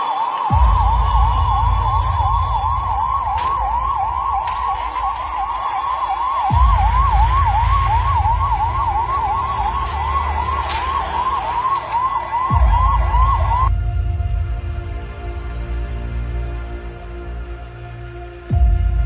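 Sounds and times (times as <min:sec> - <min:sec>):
fire engine siren yelping: 0:00.0 - 0:13.7
music: 0:00.0 - 0:19.0
deep rumble: 0:00.5 - 0:16.3.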